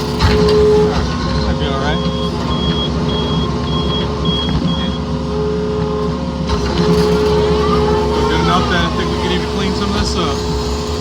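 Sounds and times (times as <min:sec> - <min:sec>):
excavator diesel engine: 0:00.0 - 0:11.0
short high beeps: 0:02.0 - 0:05.1.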